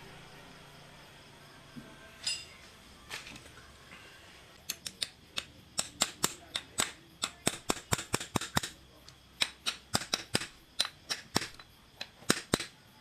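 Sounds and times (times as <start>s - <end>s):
sharp mechanical clicks: 4.7s - 12.8s.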